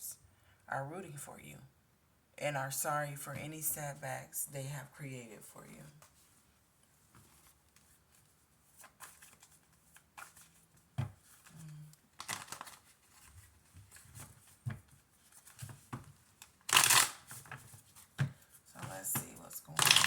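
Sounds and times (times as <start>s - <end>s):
card shuffle: 7.1s - 20.0s
cards rustling: 7.1s - 20.0s.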